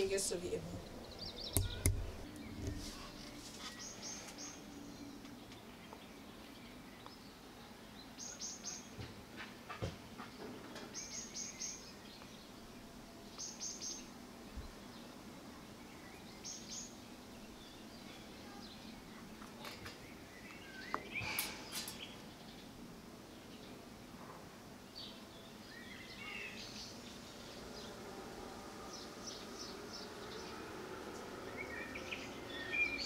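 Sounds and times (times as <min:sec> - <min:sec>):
small bird chirping: 0:00.0 - 0:07.4.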